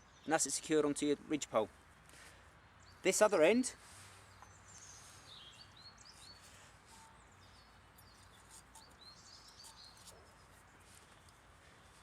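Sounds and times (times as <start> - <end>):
faint bird chirps: 4.0 - 12.0.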